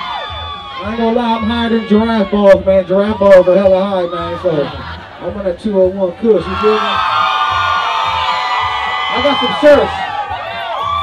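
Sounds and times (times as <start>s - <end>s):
crowd cheering and screaming: 0.0s - 11.0s
thudding bass beat: 0.0s - 11.0s.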